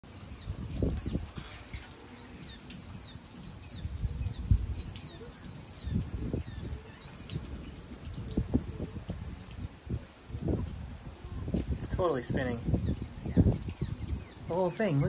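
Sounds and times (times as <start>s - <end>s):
small bird chirping: 0.1s - 8.4s, 12.1s - 15.0s
wind buffeting the microphone: 0.1s - 15.0s.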